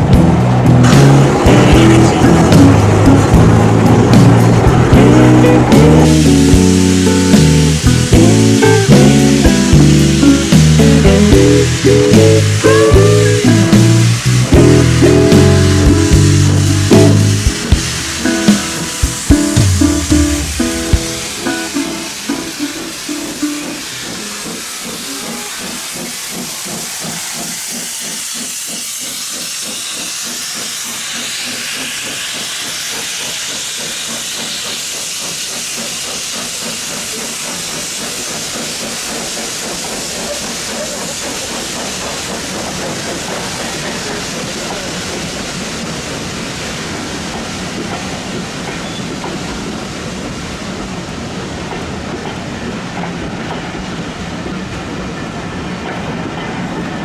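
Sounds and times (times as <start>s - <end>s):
steam locomotive hissing: 0.0s - 57.0s
fast rattling rhythm: 0.1s - 31.0s.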